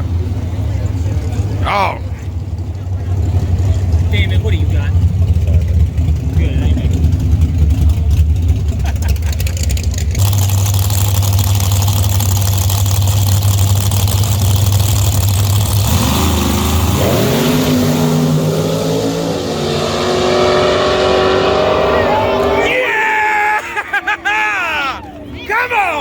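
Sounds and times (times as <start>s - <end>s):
race truck engines running: 0.0s - 26.0s
engine revving up: 3.0s - 23.1s.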